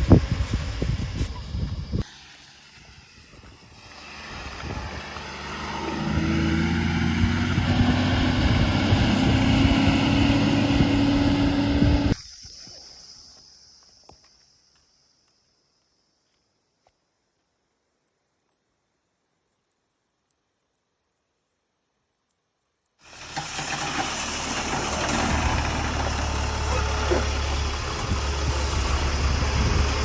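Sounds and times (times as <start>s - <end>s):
diesel engine revving: 2.0s - 12.2s, 23.0s - 30.0s.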